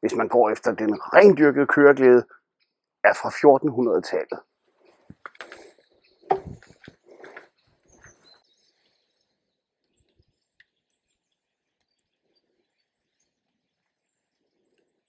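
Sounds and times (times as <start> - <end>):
faint bird chirps: 5.7 - 15.0.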